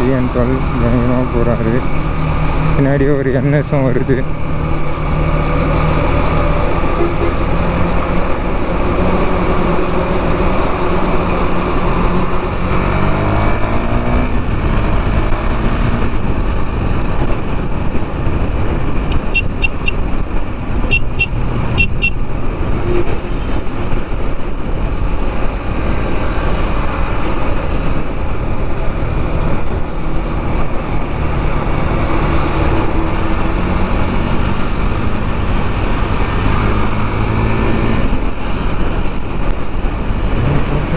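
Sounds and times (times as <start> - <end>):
wind and road noise: 0.0 - 40.9
motorcycle engine running: 14.2 - 36.3
short high-pitched beeps: 19.1 - 20.0, 20.9 - 22.2.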